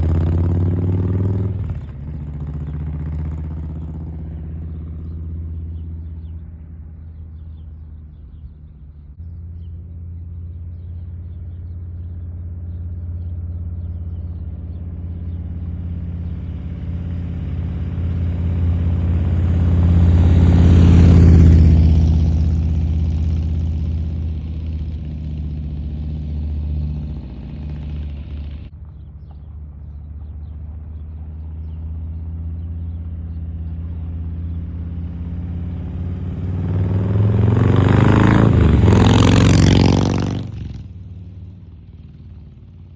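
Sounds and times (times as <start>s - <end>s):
motorcycle exhaust rumble passing: 0.0s - 42.9s.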